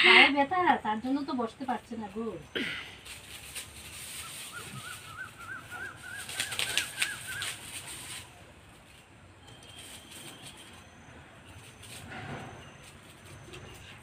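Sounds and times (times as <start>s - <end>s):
bird calling rapid notes: 4.2s - 8.0s.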